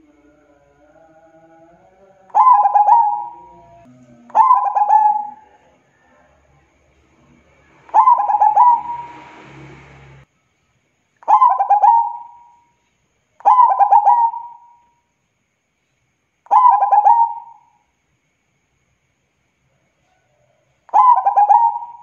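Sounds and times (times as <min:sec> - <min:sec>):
dove cooing: 0:02.2 - 0:06.1, 0:07.9 - 0:09.2, 0:11.3 - 0:12.5, 0:13.4 - 0:14.8, 0:16.5 - 0:17.7, 0:20.9 - 0:22.0.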